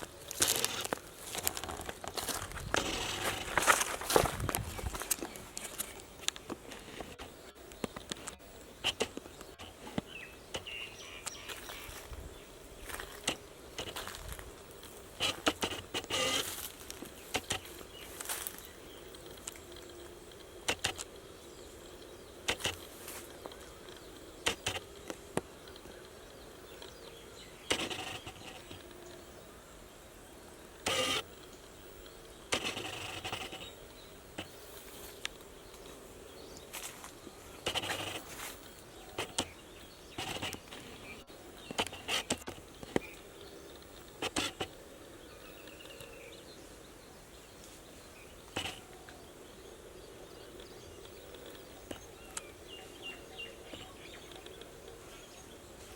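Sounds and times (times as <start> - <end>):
footsteps crunching on dry ground: 0.0 - 7.3, 9.0 - 19.6, 22.5 - 26.0, 34.4 - 43.2, 55.0 - 55.9
faint outdoor background hiss: 0.0 - 55.9.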